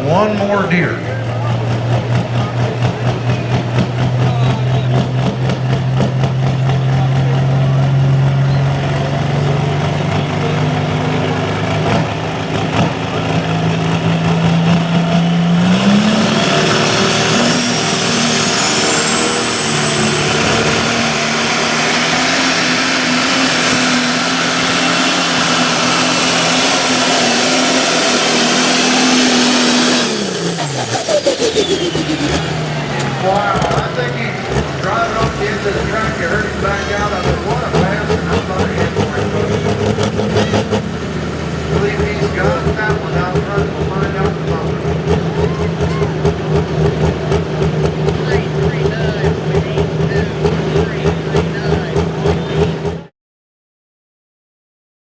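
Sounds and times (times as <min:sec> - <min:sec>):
tractor engine running hard: 0:00.0 - 0:53.1
high whine: 0:17.2 - 0:53.0.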